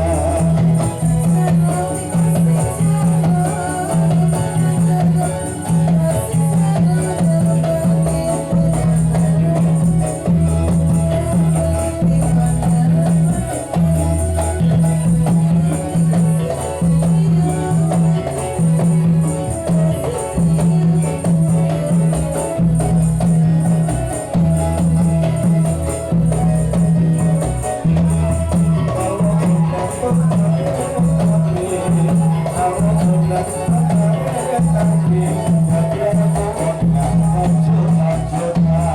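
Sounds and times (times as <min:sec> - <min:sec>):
frame drums rhythm: 0:00.0 - 0:38.9
jingling percussion: 0:00.0 - 0:38.9.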